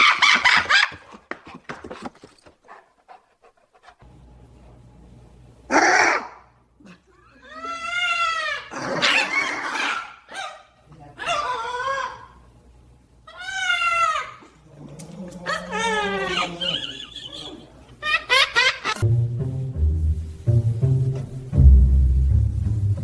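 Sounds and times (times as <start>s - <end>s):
animal wavering cries: 7.2s - 10.2s, 11.2s - 12.4s, 13.3s - 18.4s.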